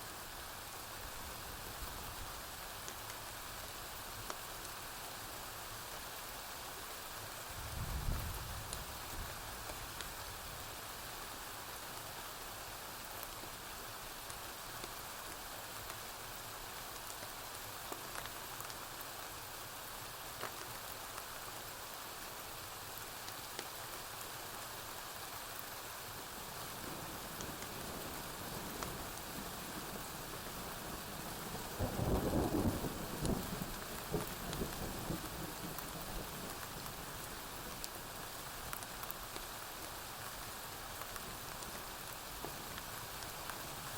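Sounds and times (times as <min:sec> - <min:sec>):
rain on a roof: 0:00.0 - 0:43.9
thunder rumbling: 0:31.6 - 0:36.4.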